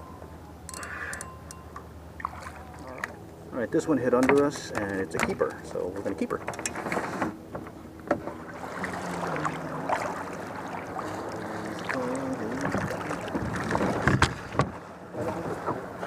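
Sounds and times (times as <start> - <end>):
gear knocks and clicks: 4.1 - 7.0.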